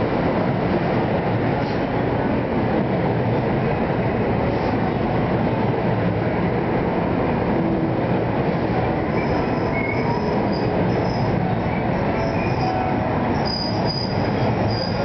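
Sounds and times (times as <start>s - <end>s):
train wheels rumbling on rail: 0.0s - 15.0s
high wheel squeals: 9.1s - 15.0s.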